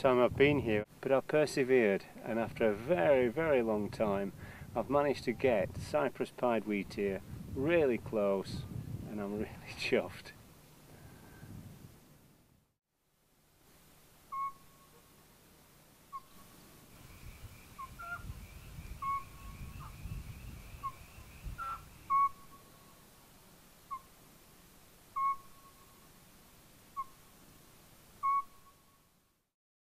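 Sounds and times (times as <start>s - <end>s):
bird whistling short notes: 14.3s - 14.9s, 20.8s - 22.5s, 25.2s - 25.8s, 28.2s - 28.8s.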